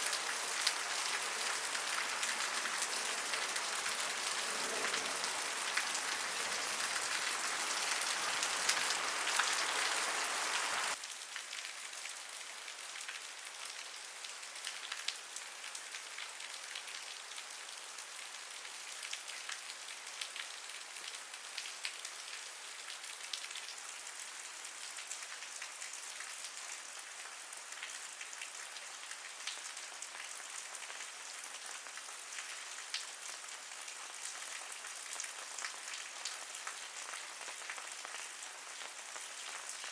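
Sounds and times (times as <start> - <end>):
rain with drops ticking: 0.0 - 39.9.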